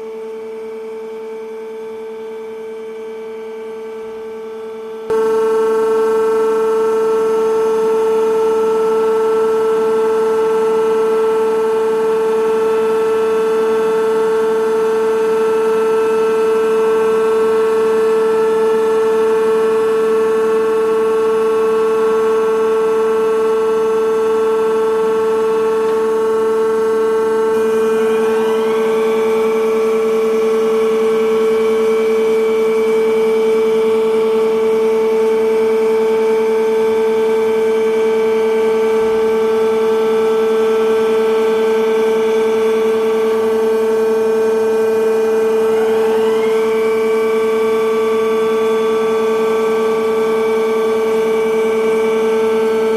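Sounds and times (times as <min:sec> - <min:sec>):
milling machine whine: 0:25.3 - 0:34.4, 0:37.4 - 0:52.9.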